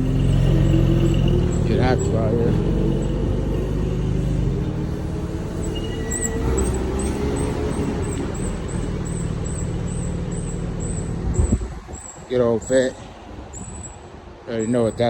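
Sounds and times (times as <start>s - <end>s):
car engines rumbling: 0.0s - 15.0s
faint high chirp: 5.6s - 15.0s.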